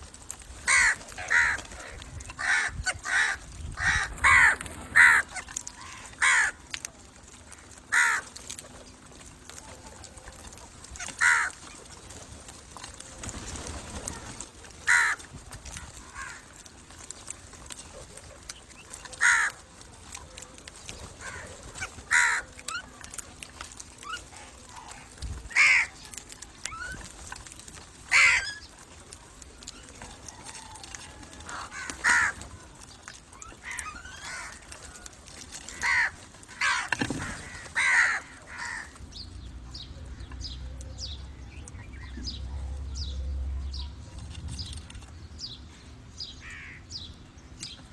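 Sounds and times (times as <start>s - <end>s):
crow cawing: 0.7s - 6.6s, 7.5s - 8.4s, 11.1s - 11.6s, 14.9s - 15.3s, 15.9s - 16.5s, 19.2s - 19.6s, 21.2s - 22.6s, 24.9s - 26.1s, 28.1s - 28.6s, 31.4s - 32.5s, 33.6s - 35.0s, 35.7s - 39.0s, 46.4s - 46.8s.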